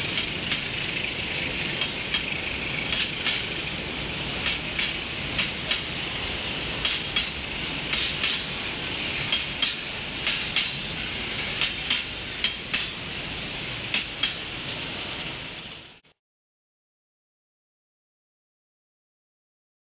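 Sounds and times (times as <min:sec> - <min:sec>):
wheels clacking over rail joints: 0:00.0 - 0:14.9
wheel-on-rail noise: 0:00.0 - 0:16.1.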